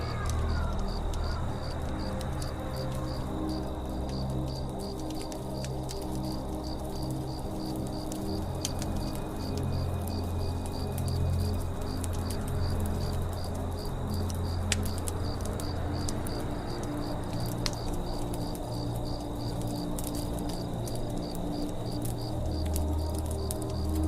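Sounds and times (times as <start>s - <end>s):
campfire crackling and popping: 0.0s - 24.0s
crickets chirping: 0.0s - 24.0s
soft music pad: 0.0s - 24.0s.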